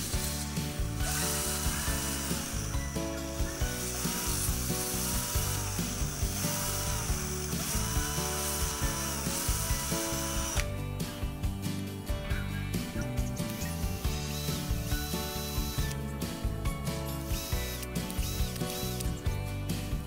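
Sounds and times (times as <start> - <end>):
sandpaper hissing on metal: 0.0 - 10.5
drill motor whining: 0.0 - 10.8, 13.3 - 16.2, 17.1 - 19.4
background music with beat: 0.0 - 20.0.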